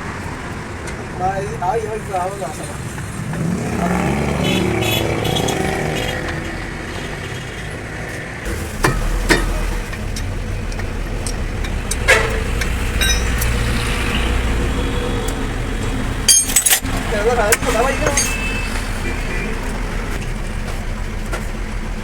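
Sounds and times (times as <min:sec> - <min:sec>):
engine low rumble: 0:06.0 - 0:22.0
sharp metal clinks: 0:12.0 - 0:13.8, 0:16.3 - 0:17.0, 0:17.7 - 0:18.7.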